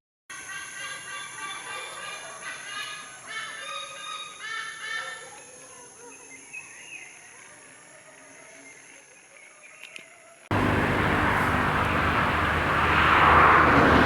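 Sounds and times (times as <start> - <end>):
birds calling: 9.8 - 14.0.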